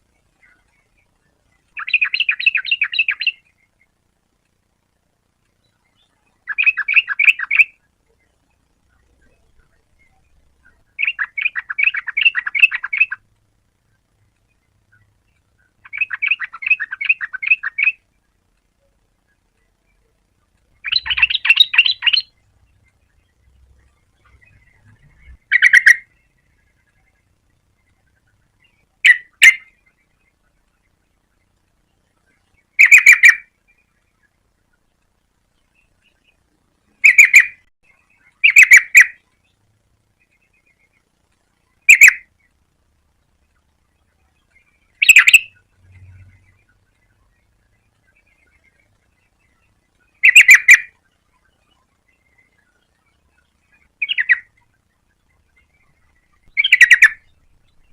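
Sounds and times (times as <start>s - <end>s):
bulbul singing: 0.0s - 4.0s, 5.4s - 57.9s
bird chattering calls: 1.7s - 3.5s, 6.0s - 7.8s, 8.9s - 13.2s, 14.9s - 18.0s, 20.8s - 22.4s, 24.2s - 26.8s, 28.2s - 30.0s, 32.7s - 33.5s, 37.0s - 39.2s, 41.8s - 42.3s, 44.9s - 46.5s, 49.4s - 51.0s, 53.7s - 54.6s, 55.6s - 57.9s.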